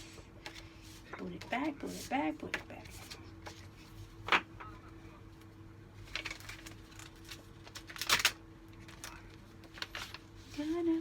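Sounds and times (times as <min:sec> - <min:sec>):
faint steady hum: 0:00.0 - 0:11.0
paper rustling and clicks: 0:06.0 - 0:10.2.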